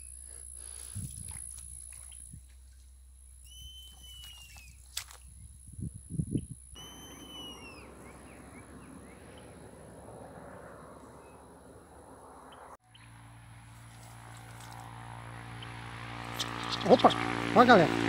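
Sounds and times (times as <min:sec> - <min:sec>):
bird whistled calls: 0:03.4 - 0:04.8, 0:06.8 - 0:09.5.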